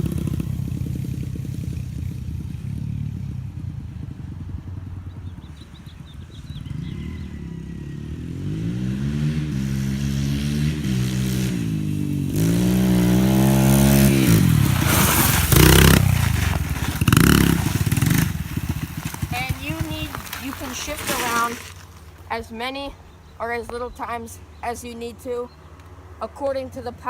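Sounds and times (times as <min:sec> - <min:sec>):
dirt bike engine accelerating: 0:00.0 - 0:24.1
rough rushing noise: 0:11.3 - 0:22.4.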